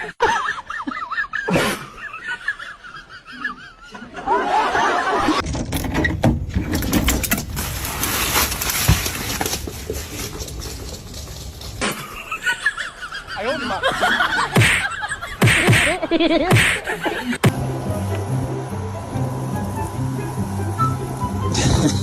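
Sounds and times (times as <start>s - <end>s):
people laughing: 0.0s - 5.4s, 11.8s - 17.5s, 21.2s - 22.0s.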